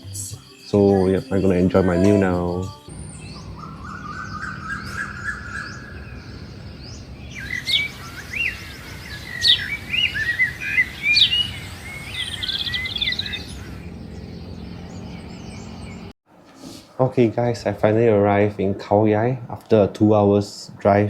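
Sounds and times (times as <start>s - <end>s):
bird trill: 0.0s - 16.1s
birds chirping and whistling: 0.0s - 16.1s
rising high tone: 1.6s - 6.0s.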